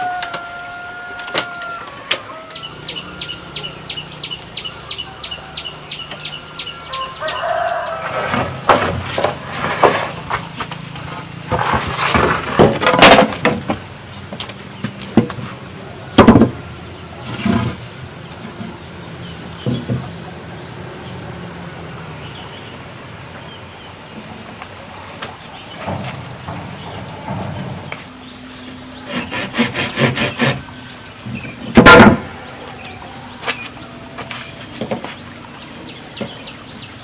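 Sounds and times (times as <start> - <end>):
high chirps: 2.4 - 7.6
loud knocks and scrapes: 7.4 - 16.6, 17.2 - 18.8, 25.2 - 32.4.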